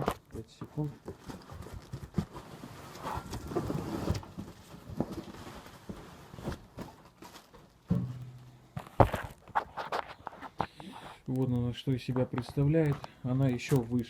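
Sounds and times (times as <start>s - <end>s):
knocks and rustling: 0.0s - 10.7s.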